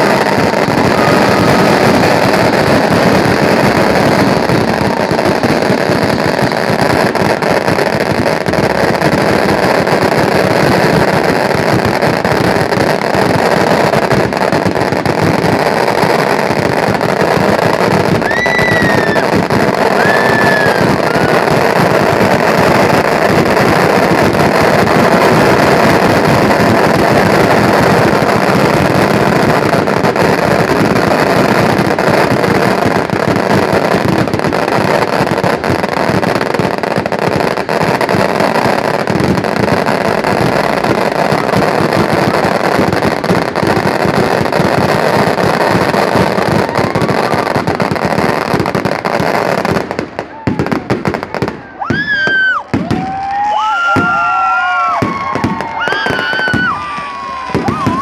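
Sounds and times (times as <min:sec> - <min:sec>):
fireworks crackling bangs: 0:00.0 - 0:58.0.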